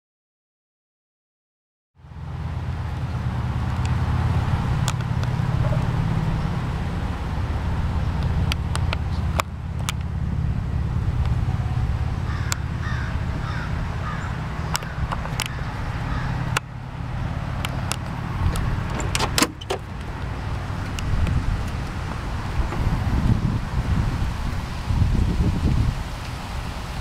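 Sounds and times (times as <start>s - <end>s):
car engine idling: 2.0s - 24.3s
sharp clicks: 14.7s - 15.6s.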